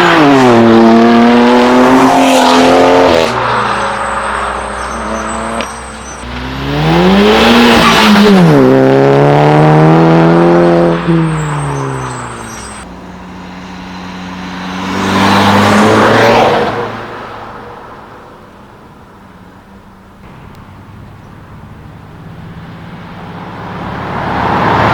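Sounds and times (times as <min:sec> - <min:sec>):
car engine accelerating hard: 0:00.0 - 0:16.9.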